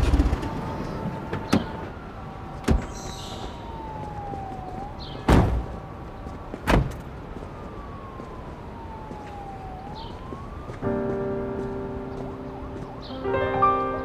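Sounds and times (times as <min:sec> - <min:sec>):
police siren wailing: 0:00.0 - 0:14.0
loud thump: 0:05.3 - 0:05.7
music with held notes: 0:10.8 - 0:14.0.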